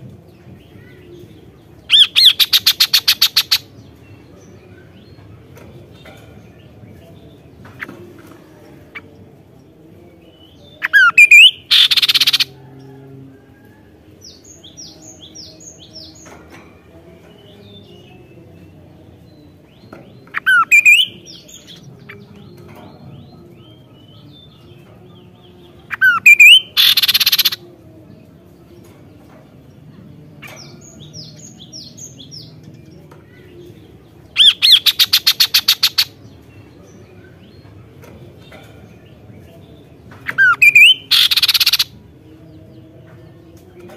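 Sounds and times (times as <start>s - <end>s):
bird whistles and harsh rasp: 40.7s - 41.8s.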